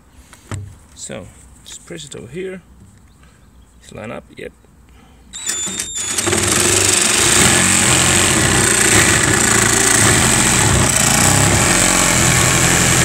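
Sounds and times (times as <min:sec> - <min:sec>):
cordless saw cutting plywood: 0:05.4 - 0:13.0.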